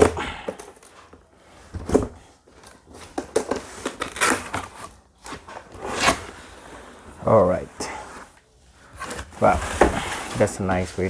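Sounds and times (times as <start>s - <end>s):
packaging rustling and crinkling: 0.0s - 6.6s
cardboard box seal tearing: 3.2s - 6.6s.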